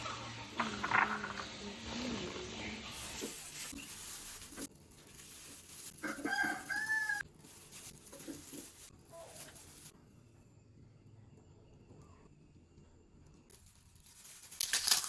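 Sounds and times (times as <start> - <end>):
rooster crowing: 6.0 - 7.2.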